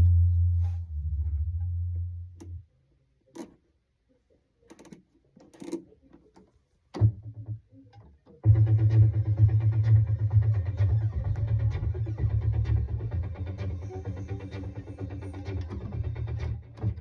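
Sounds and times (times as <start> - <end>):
low synthesizer note: 0.0 - 2.6.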